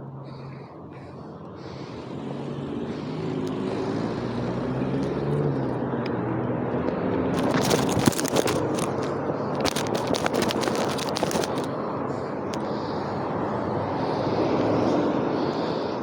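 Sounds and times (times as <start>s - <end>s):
vehicle engine approaching: 0.0s - 16.0s
crackling rattle: 7.3s - 12.8s.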